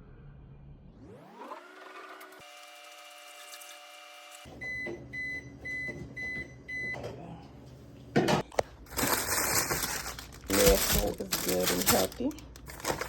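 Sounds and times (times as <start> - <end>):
microwave oven running: 1.4 - 13.0
microwave beeping: 4.4 - 7.4
rustling: 8.9 - 13.0.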